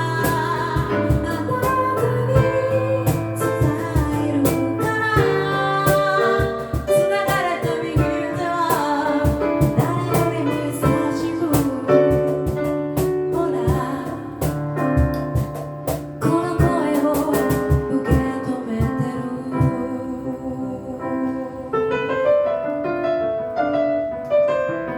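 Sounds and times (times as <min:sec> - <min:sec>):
a cappella group singing: 0:00.0 - 0:12.1.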